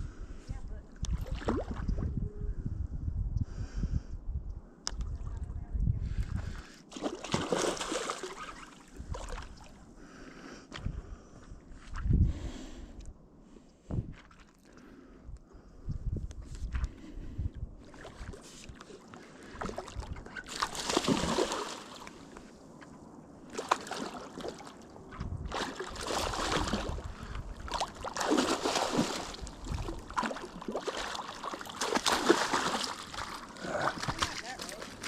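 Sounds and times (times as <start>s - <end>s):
water sloshing and splashing: 1.0s - 2.0s, 6.9s - 9.8s, 17.8s - 35.0s.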